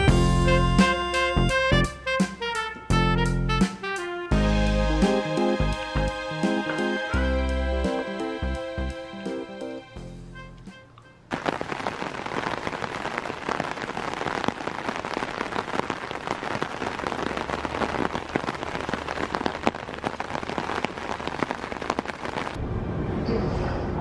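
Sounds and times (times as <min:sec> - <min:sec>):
rain on umbrella fabric: 0:11.3 - 0:22.6.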